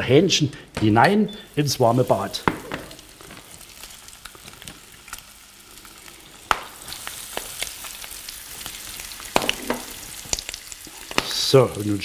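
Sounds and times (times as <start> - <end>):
fat crackling and popping: 0.0 - 12.0
chicken sizzling in a pan: 1.4 - 12.0.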